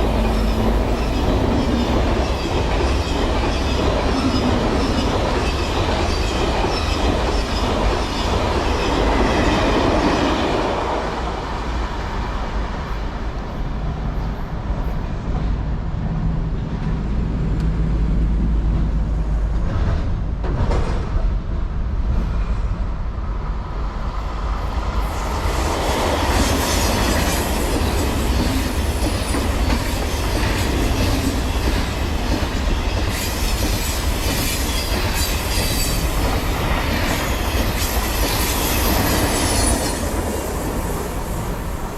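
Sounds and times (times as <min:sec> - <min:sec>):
train rumbling on rails: 0:00.0 - 0:41.9.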